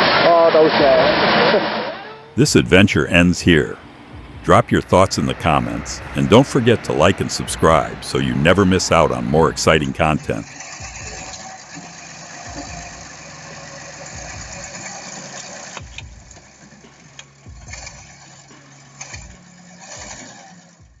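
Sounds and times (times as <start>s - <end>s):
vehicle engine running unevenly: 2.4s - 11.4s
low thumps: 3.7s - 4.7s.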